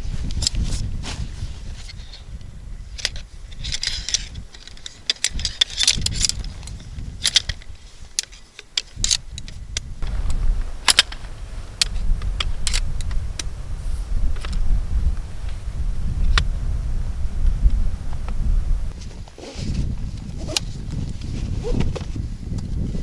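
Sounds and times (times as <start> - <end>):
sharp clicks and light clinks: 10.0 - 18.9
steady low rumble: 10.0 - 18.9.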